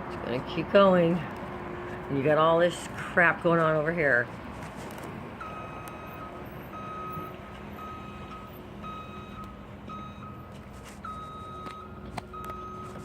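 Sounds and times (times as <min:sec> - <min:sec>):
reversing alarm beeping: 0:05.4 - 0:13.0.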